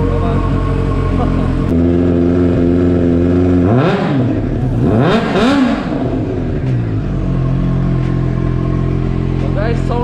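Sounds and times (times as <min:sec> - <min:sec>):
motorcycle engine idling and revving: 0:00.0 - 0:10.0.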